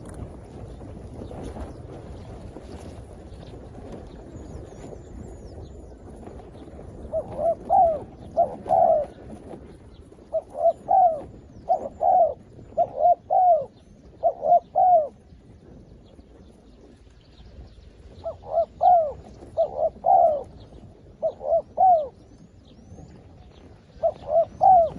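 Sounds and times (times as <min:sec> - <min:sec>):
dove cooing: 0:06.3 - 0:15.8, 0:18.1 - 0:23.2, 0:23.8 - 0:24.9.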